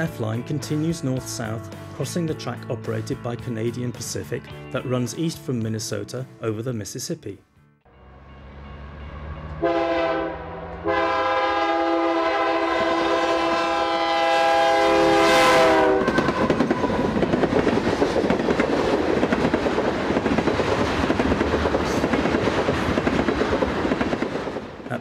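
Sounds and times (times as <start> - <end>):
locomotive air horn: 9.4 - 17.0
train wheels clattering: 16.0 - 25.0.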